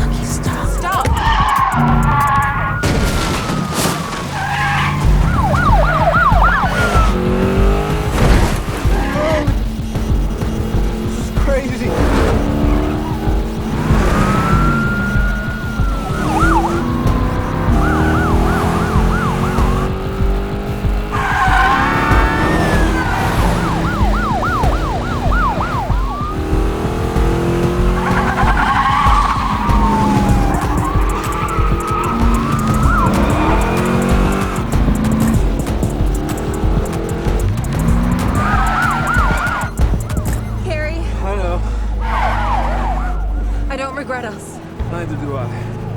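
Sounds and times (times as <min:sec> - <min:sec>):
tire squeals: 0:00.0 - 0:09.7, 0:10.3 - 0:44.8
car engines revving: 0:00.0 - 0:45.9.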